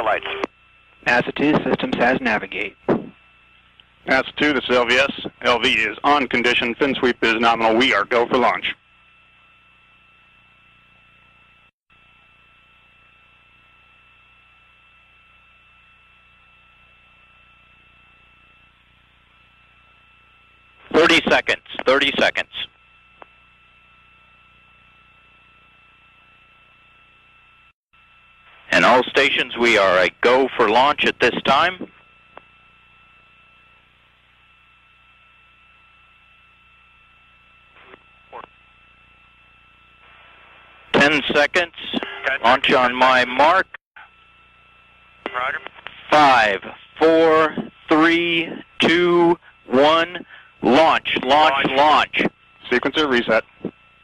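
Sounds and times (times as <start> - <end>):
radio channel hiss and hum: 0.0 - 54.0.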